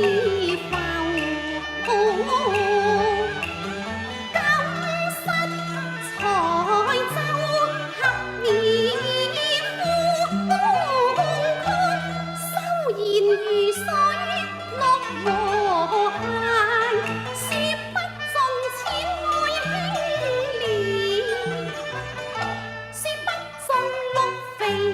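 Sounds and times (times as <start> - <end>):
person singing opera: 0.0 - 3.5, 4.4 - 21.8
sustained instrumental accompaniment: 0.0 - 24.9.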